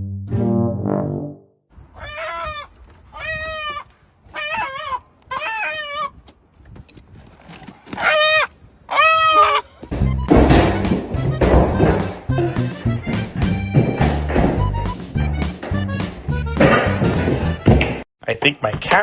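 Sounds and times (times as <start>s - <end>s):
animal calling: 2.0s - 6.2s, 8.0s - 10.3s.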